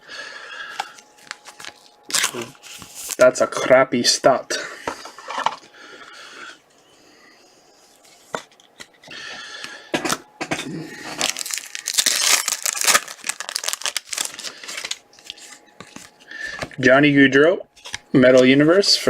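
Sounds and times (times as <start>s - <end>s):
wrapper crinkling and tearing: 0.8s - 3.3s, 11.1s - 16.2s.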